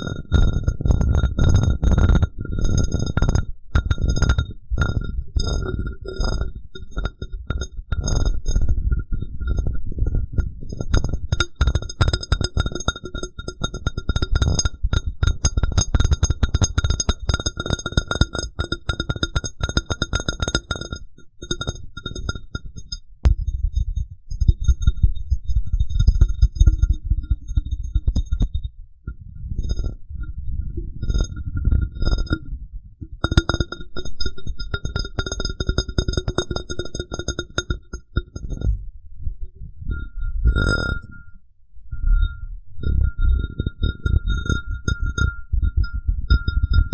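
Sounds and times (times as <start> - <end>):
glass cup clicks and thuds: 3.8 - 5.6, 10.8 - 22.1, 33.1 - 34.0.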